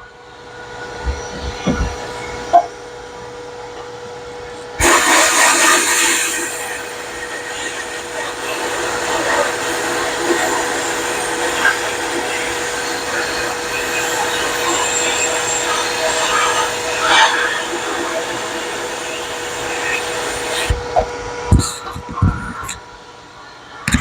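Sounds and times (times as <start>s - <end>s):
vacuum humming: 4.3s - 23.0s
air nozzle hissing: 4.8s - 20.8s.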